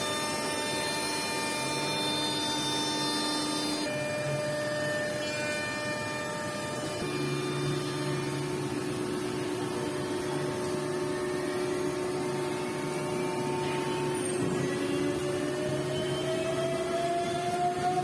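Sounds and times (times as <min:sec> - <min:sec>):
woodworking machine hum: 0:00.0 - 0:18.0
motor whine rising in pitch: 0:09.6 - 0:18.0.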